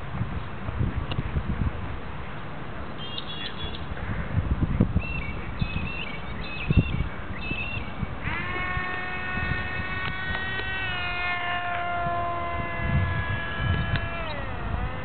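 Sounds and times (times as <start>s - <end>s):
wind buffeting microphone: 0.0s - 2.3s, 3.6s - 15.0s
model airplane motor whining: 8.2s - 15.0s.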